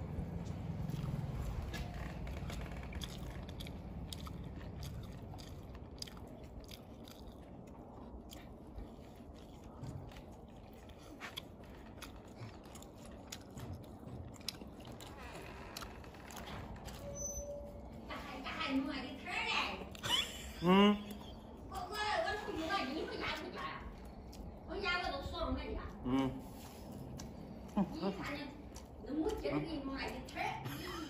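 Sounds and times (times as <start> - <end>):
people chewing food: 0.0 - 31.0.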